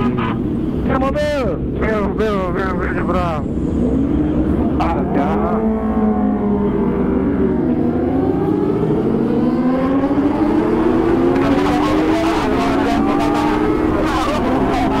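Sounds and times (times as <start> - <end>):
motorcycle engine accelerating: 3.8 - 15.0.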